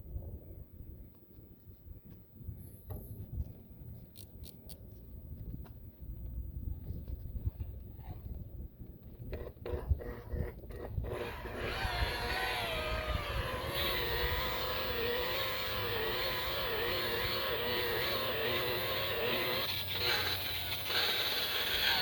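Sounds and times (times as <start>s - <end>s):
rotary buffer motor whining: 9.3s - 22.0s.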